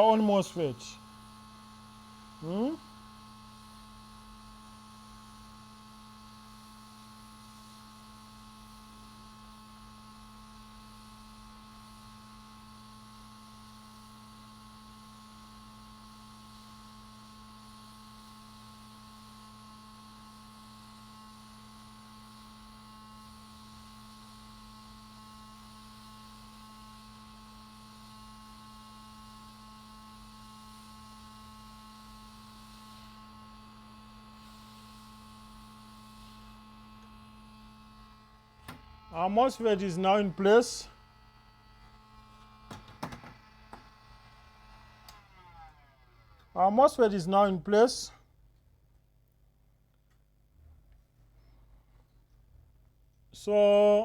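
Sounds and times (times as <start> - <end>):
steady electrical hum: 0.0 - 5.5, 32.6 - 45.1.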